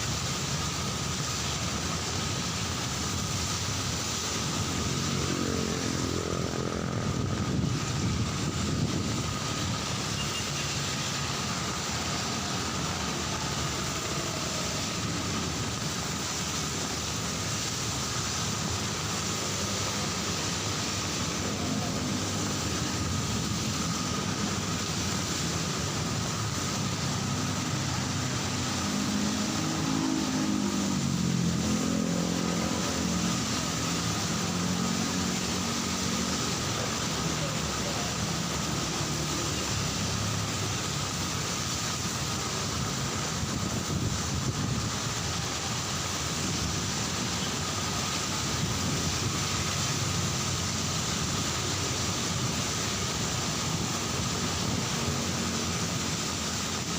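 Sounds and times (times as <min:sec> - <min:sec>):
cars and motorcycles passing: 0:00.0 - 0:56.9
heavy rain falling: 0:00.0 - 0:56.9
engine hum: 0:03.2 - 0:48.6.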